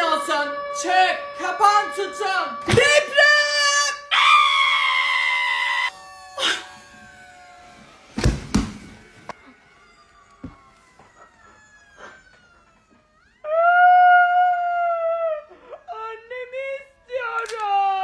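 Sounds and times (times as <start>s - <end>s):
shrill scream: 0.0s - 15.9s
heavy thumps: 8.1s - 9.3s.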